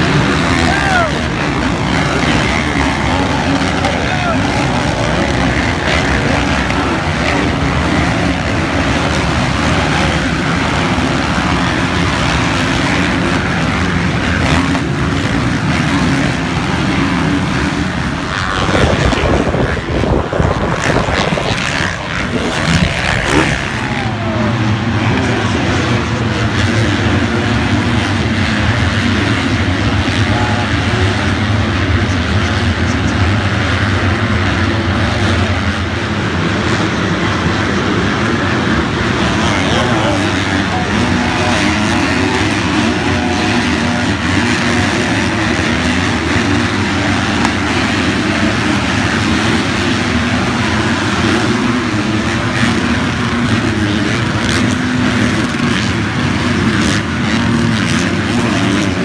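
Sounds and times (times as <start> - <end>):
engine drone: 0.0 - 59.0
loud rough irregular noise: 0.0 - 59.0.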